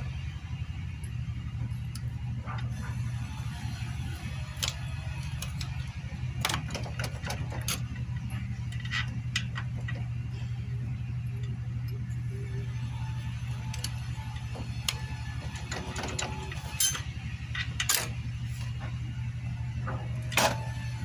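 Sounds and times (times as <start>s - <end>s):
steady low hum: 0.0s - 21.0s
metal tools clinking on engine parts: 4.3s - 19.1s, 19.7s - 20.9s.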